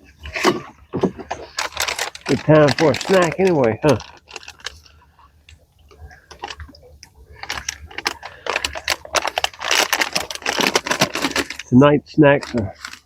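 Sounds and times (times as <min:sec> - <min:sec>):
plastic wrapper crinkling: 0:00.1 - 0:13.0
small candies clicking and rattling: 0:01.3 - 0:04.9, 0:07.4 - 0:11.7, 0:12.4 - 0:13.0.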